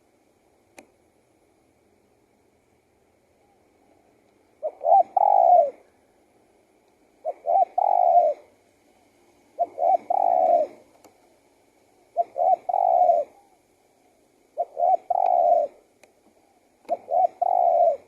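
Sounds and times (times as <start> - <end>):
dove cooing: 3.4 - 6.2, 7.1 - 18.0.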